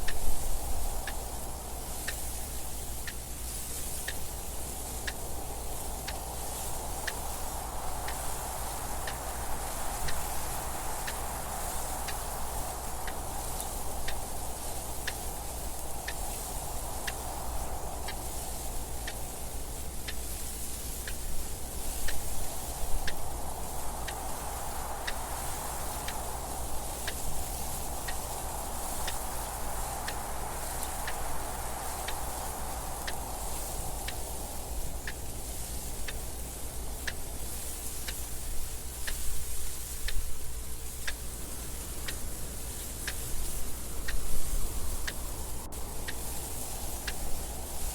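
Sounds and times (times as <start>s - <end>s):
soft wind hiss: 0.0s - 47.9s
clock ticking: 9.0s - 9.4s, 12.0s - 16.2s, 17.0s - 17.3s, 23.0s - 23.3s, 29.0s - 37.4s, 38.0s - 47.6s.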